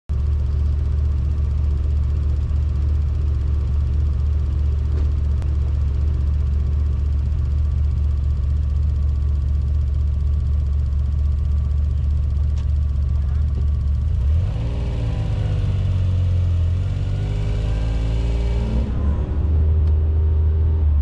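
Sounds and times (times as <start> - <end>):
car engine idling: 0.1 - 17.4.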